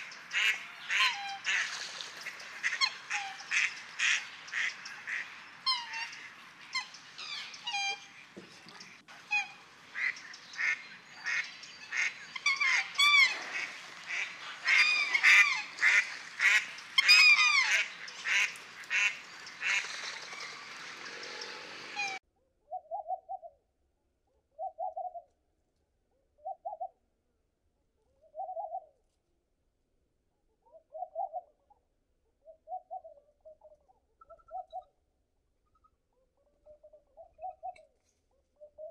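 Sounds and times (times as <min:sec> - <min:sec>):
goose-like bird calls: 0:00.0 - 0:22.2
dove cooing: 0:11.9 - 0:23.5, 0:24.6 - 0:25.2, 0:28.4 - 0:28.9, 0:30.8 - 0:31.5.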